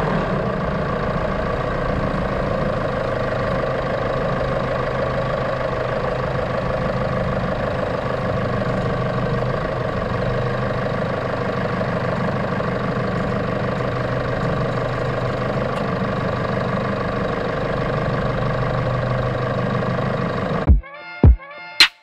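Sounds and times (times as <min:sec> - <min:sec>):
engine humming: 0:00.0 - 0:20.7
music: 0:20.7 - 0:22.0.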